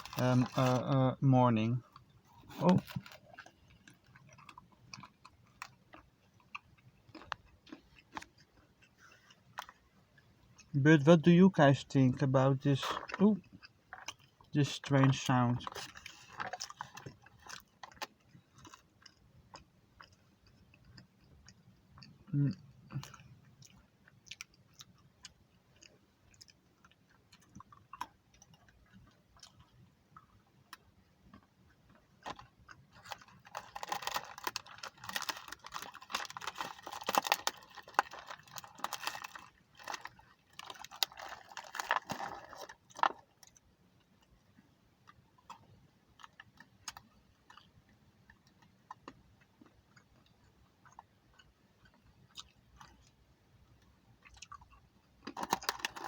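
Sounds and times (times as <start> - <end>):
crackling and rustling: 0.0 - 1.0, 32.2 - 43.6
crunchy chewing: 1.8 - 10.7, 12.7 - 56.0.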